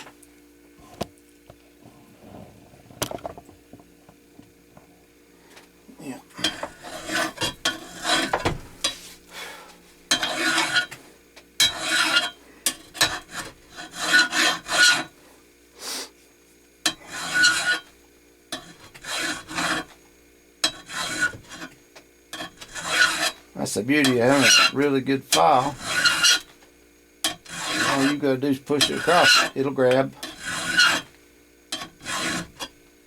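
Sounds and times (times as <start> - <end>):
hand file rasping on metal: 6.4 - 9.1, 10.1 - 11.0, 11.6 - 15.2, 16.9 - 17.9, 18.5 - 20.0, 20.6 - 23.4, 24.0 - 26.5, 27.2 - 32.8.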